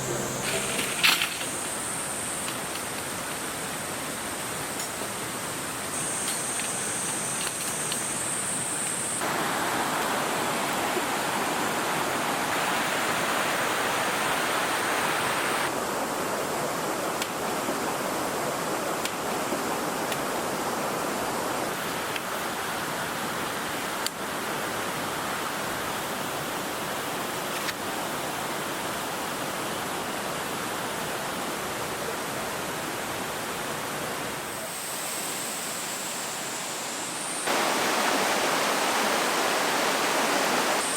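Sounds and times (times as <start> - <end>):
thin high steady buzz: 0.0 - 4.2, 34.4 - 40.9
stream rushing over rocks: 9.2 - 40.9.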